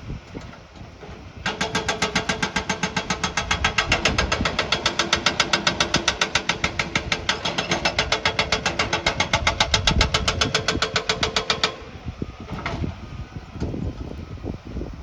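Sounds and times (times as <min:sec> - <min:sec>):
scattered knocks: 0:01.4 - 0:11.8
machinery mechanical hammering: 0:01.4 - 0:12.0.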